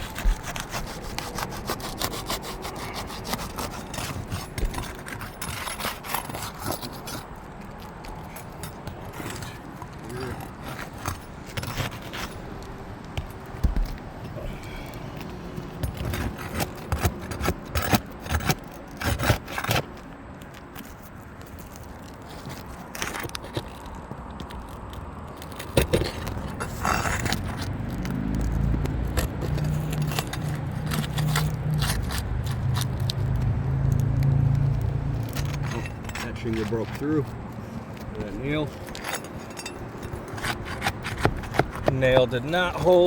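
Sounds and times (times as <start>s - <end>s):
pry bar scraping shingles: 0.0s - 43.0s.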